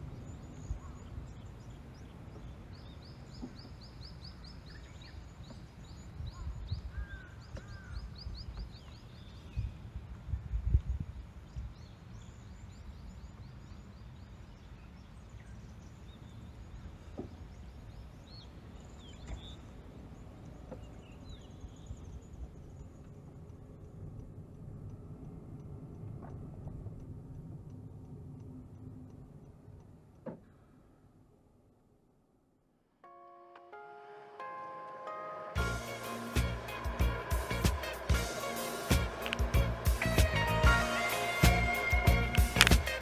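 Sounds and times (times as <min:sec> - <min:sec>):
birds chirping: 0:00.0 - 0:09.8, 0:35.6 - 0:43.0
steady low rumble: 0:19.7 - 0:30.2, 0:35.6 - 0:43.0.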